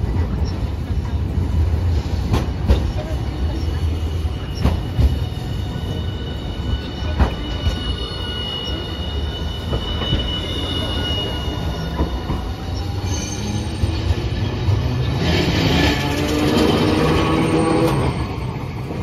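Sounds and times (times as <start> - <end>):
tram wheel and rail rumble: 0.0 - 19.0
high wheel squeal: 3.2 - 19.0.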